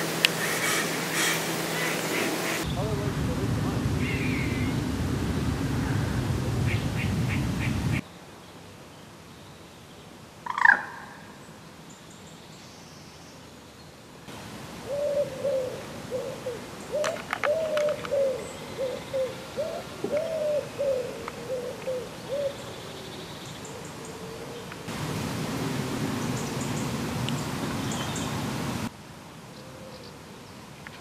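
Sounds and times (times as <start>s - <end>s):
loud sharp bird call: 0.4s - 2.9s.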